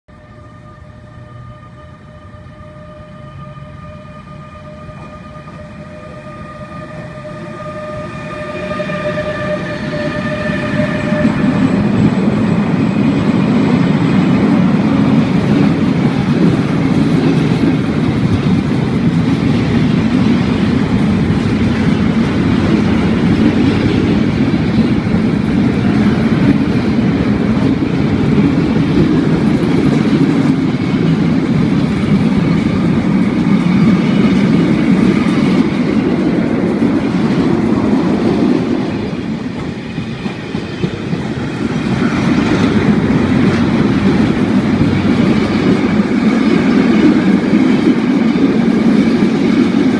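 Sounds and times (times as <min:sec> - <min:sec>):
high train squeal: 0:00.1 - 0:49.9
freight wagons rumbling and rattling: 0:11.0 - 0:49.9.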